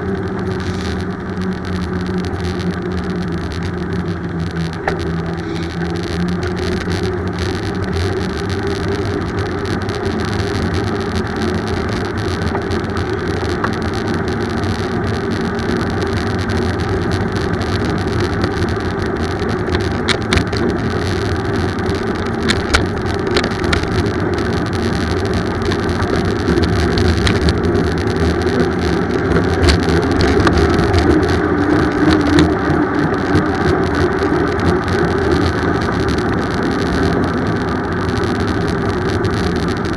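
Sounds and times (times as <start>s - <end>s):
bicycle tyre and road noise: 0.0s - 39.9s
sharp clicks and rattles: 0.0s - 39.9s.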